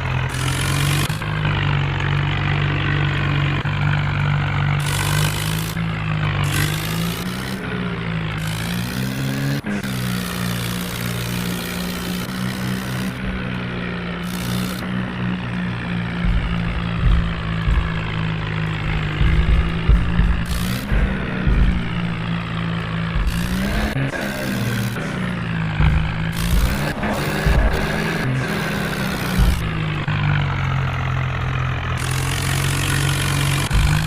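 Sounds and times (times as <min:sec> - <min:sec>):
tractor diesel engine running: 0:00.0 - 0:34.0
low uneven thumps: 0:13.0 - 0:24.1, 0:25.2 - 0:34.0.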